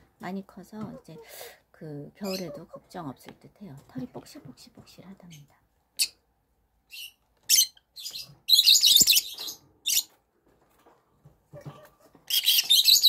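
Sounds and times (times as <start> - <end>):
young chickens chirping: 2.2 - 3.1, 11.5 - 13.0.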